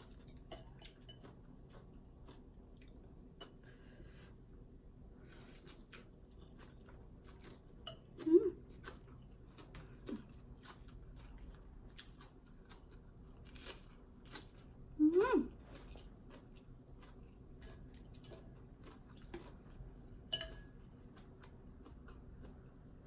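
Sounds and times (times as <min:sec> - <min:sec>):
chewing with small crunches: 0:00.0 - 0:23.0.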